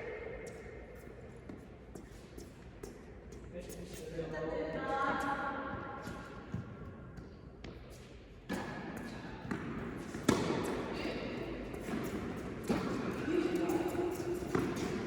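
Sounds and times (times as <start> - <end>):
tennis ball knocks: 9.5 - 10.8.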